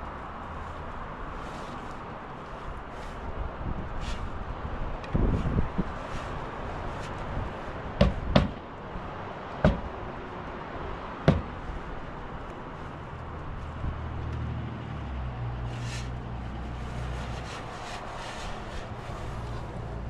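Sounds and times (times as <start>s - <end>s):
sharp knocks: 8.0s - 8.6s, 9.6s - 9.9s, 11.3s - 11.6s.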